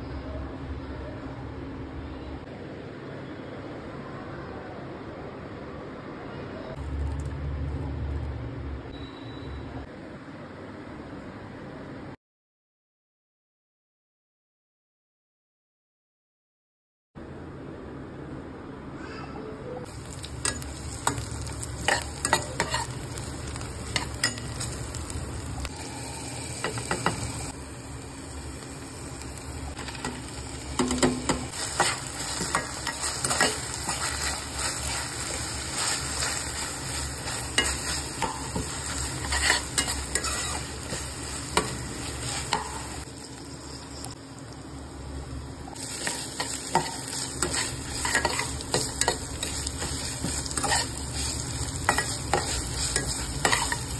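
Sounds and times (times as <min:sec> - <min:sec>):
food sizzling in hot oil: 0:19.9 - 0:53.9
spatula scraping and knocking pan: 0:46.0 - 0:53.9.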